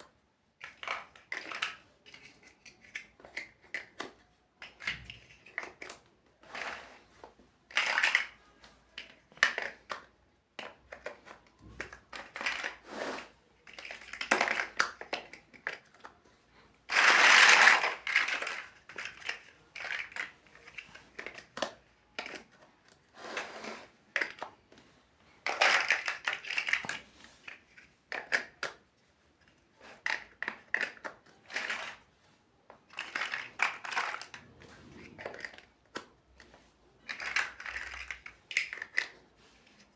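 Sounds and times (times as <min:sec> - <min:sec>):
plastic bricks clicking: 0:09.0 - 0:12.8, 0:13.6 - 0:16.1, 0:16.9 - 0:22.6, 0:25.4 - 0:28.8, 0:29.9 - 0:32.0, 0:32.9 - 0:36.1, 0:37.1 - 0:39.2
plastic bricks rustling: 0:16.8 - 0:22.6, 0:25.4 - 0:28.8, 0:32.8 - 0:39.9.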